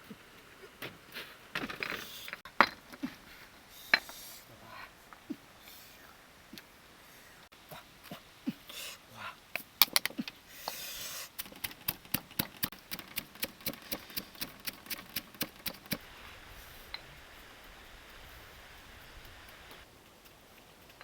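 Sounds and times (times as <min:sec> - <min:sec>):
rustling: 0:00.0 - 0:21.0
steady sharp tapping: 0:09.6 - 0:16.2.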